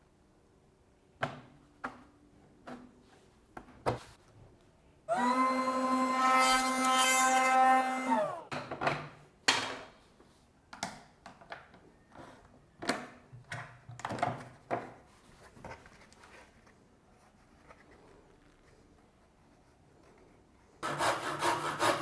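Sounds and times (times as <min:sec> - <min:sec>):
router motor winding down: 0:05.1 - 0:08.5.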